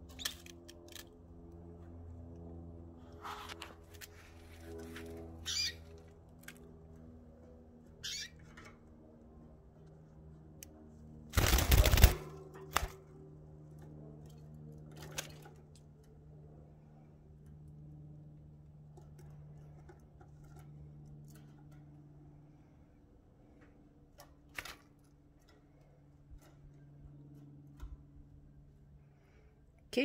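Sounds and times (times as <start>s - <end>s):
steady low hum: 0.0s - 30.0s
pet birds chirping: 5.4s - 5.9s, 8.0s - 8.5s.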